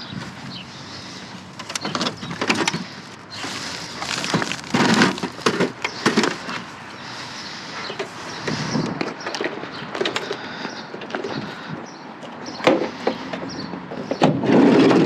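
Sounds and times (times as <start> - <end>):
junk clattering and knocking: 1.6 - 6.7, 12.6 - 15.0.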